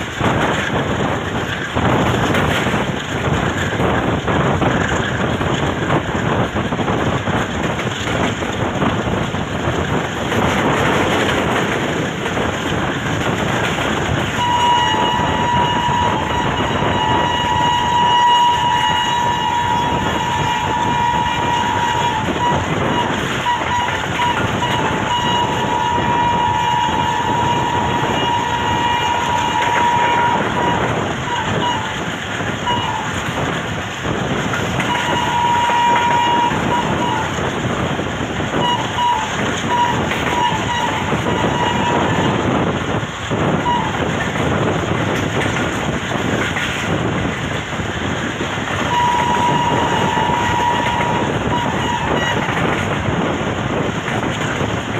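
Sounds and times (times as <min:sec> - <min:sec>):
train wheels clattering on rails: 0:00.0 - 0:54.9
train horn blasts: 0:14.0 - 0:33.3, 0:34.6 - 0:37.7, 0:38.5 - 0:44.1, 0:48.7 - 0:53.3.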